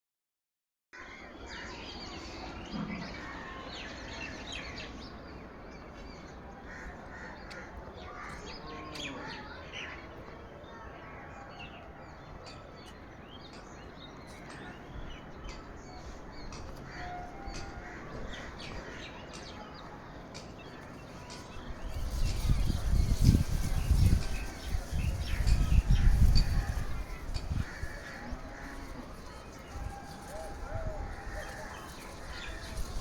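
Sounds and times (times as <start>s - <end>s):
birds chirping and calling: 12.4s - 33.0s.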